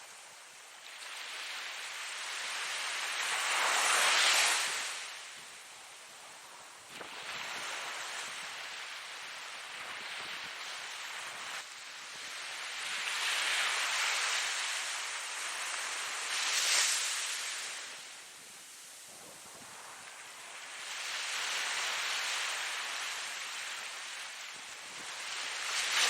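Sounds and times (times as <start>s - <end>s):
ocean surf breaking waves: 0.0s - 5.7s, 6.3s - 26.0s.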